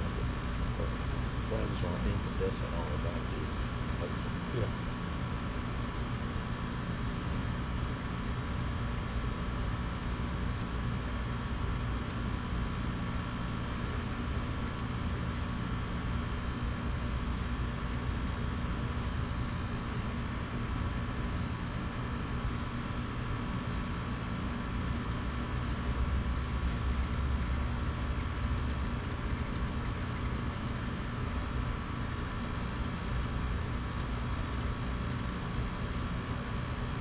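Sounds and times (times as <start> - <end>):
hummingbird chirps: 0.0 - 5.1, 5.8 - 6.3, 6.9 - 18.0, 24.8 - 35.3
mechanical hum: 0.0 - 37.0.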